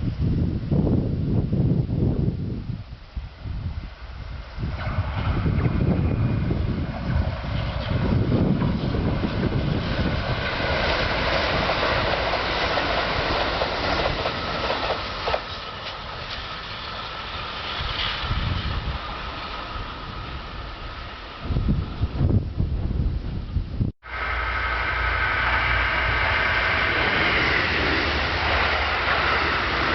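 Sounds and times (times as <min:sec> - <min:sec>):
electric train running past: 0:03.4 - 0:22.9, 0:24.0 - 0:29.9.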